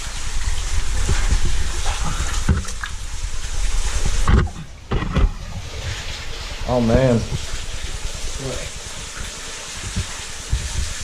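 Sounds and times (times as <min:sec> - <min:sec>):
water sloshing and splashing: 0:00.0 - 0:11.0
scrapes and knocks: 0:03.9 - 0:06.1.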